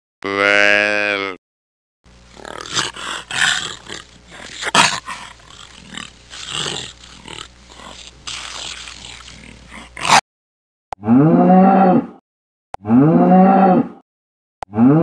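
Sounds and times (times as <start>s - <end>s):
jaguar growling: 2.3s - 10.2s.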